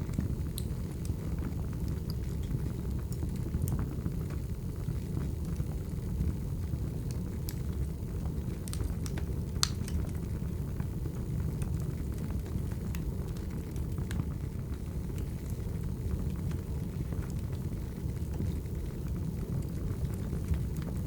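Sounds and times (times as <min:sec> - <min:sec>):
fire rumbling: 0:00.0 - 0:21.0
firewood crackles and pops: 0:00.0 - 0:21.0.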